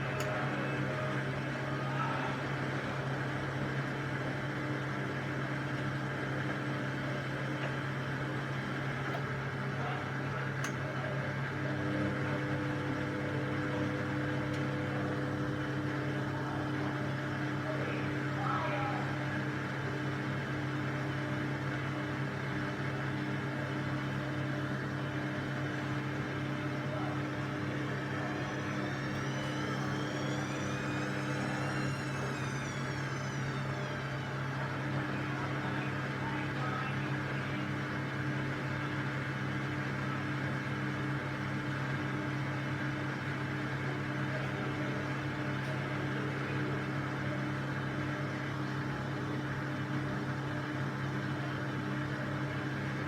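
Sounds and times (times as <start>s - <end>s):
washing machine motor hum: 0.0s - 53.0s
faint high whine: 26.9s - 37.8s.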